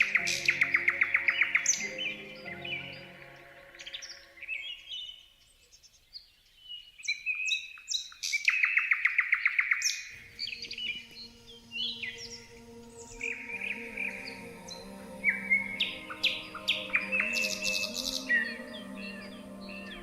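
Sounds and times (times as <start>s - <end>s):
songbirds chirping and whistling: 0.0s - 20.0s
faint steady low tones: 10.2s - 20.0s.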